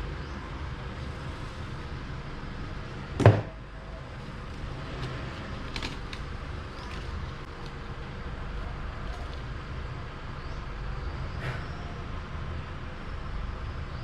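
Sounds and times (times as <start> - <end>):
steady background hum: 0.0 - 14.0
sharp knock: 3.2 - 3.6.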